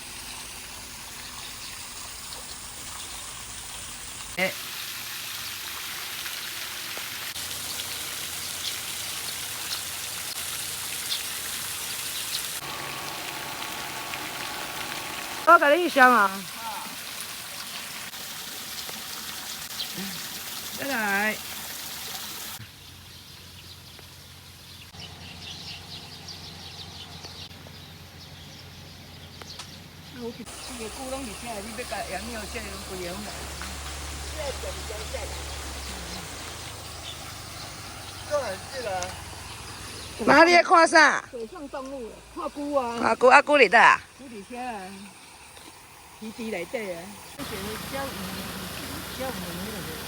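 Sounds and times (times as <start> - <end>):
steady rain hiss: 0.0 - 25.6, 30.4 - 50.0
flock of small birds twittering: 7.4 - 10.4, 22.0 - 40.5, 44.0 - 50.0
raindrops ticking: 30.5 - 40.5, 41.3 - 50.0.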